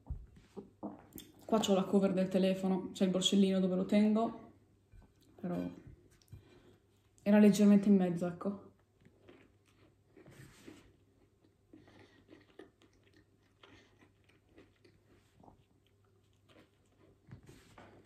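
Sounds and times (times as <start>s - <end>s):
biting and chewing sandwich: 9.0s - 18.0s.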